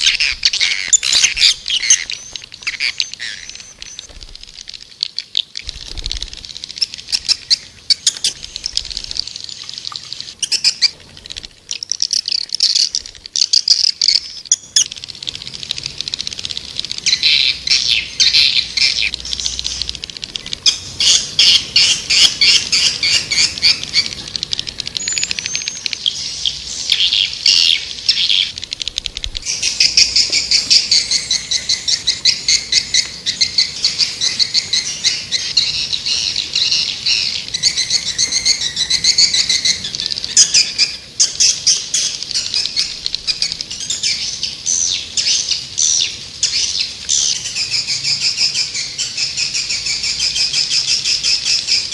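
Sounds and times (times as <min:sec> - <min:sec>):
swiftlets twittering: 0:00.0 - 0:11.0.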